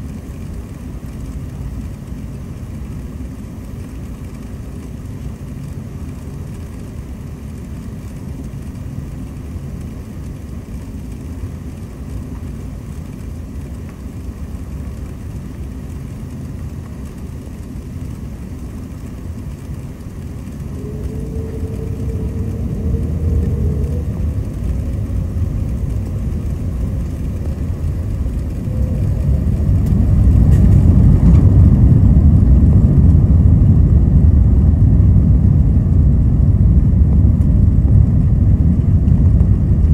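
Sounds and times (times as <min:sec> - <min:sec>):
jet engines spooling up: 0:17.0 - 0:39.9.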